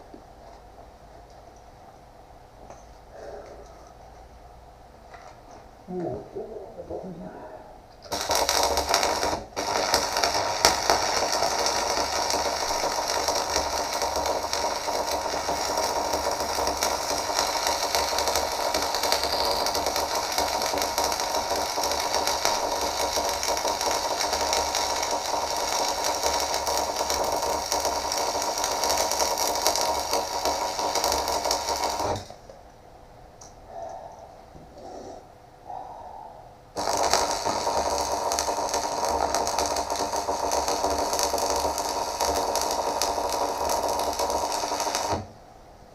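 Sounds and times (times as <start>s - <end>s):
welding arc crackling: 8.0s - 32.4s, 36.8s - 45.3s.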